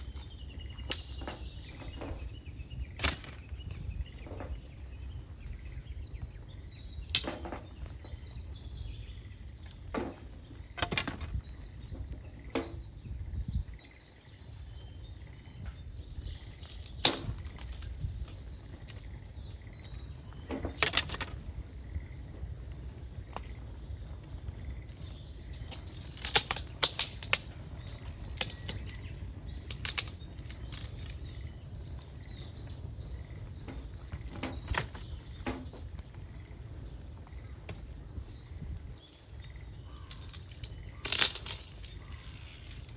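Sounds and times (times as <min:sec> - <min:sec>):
songbird chirping: 0:00.0 - 0:42.9
sharp cracks: 0:25.7 - 0:27.6, 0:40.0 - 0:42.4.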